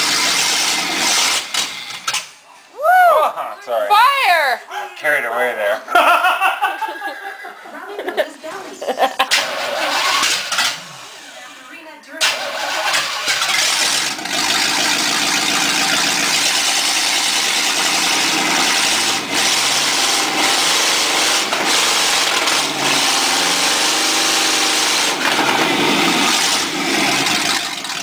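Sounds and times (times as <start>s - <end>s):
loud engine revving: 0.0s - 1.6s, 9.3s - 11.3s, 12.2s - 28.0s.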